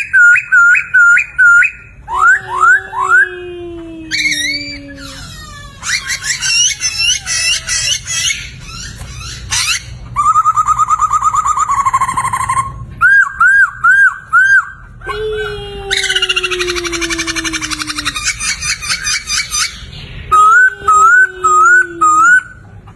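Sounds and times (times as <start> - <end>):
bird singing whistled song: 0.0 - 2.7.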